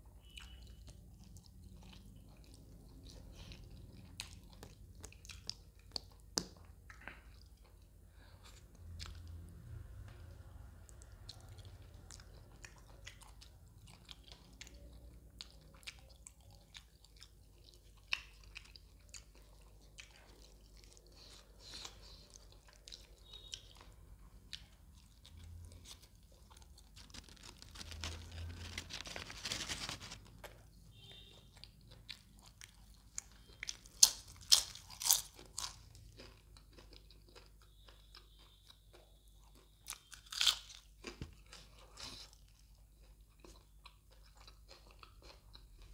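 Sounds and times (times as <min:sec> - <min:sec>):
man chewing: 0:00.2 - 0:09.6, 0:10.9 - 0:45.9
crunchy bites: 0:25.2 - 0:30.6, 0:32.4 - 0:38.7, 0:39.5 - 0:42.3.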